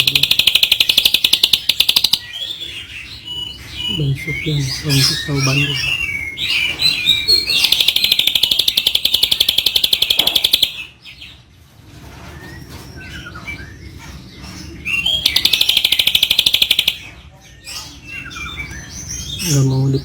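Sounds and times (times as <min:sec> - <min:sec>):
bird high trill: 0:00.0 - 0:02.6, 0:07.0 - 0:11.0, 0:15.0 - 0:17.1
soft bird chirps: 0:00.0 - 0:10.9, 0:12.4 - 0:20.0.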